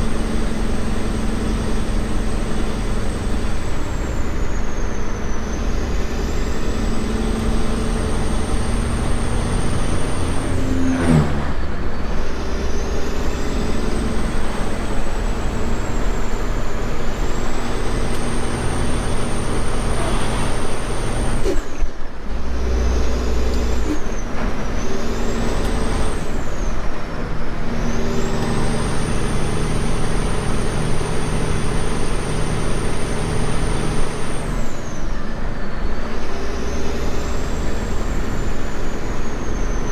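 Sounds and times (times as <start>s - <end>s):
high whine: 0.0s - 21.6s
diesel truck engine running: 0.0s - 39.9s.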